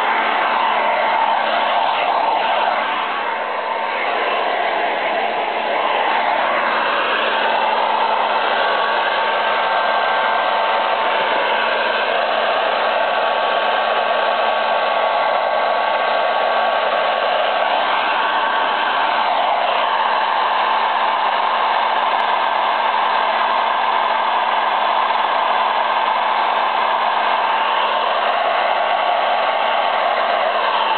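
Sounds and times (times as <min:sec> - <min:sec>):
hair dryer blowing: 0:00.0 - 0:30.9.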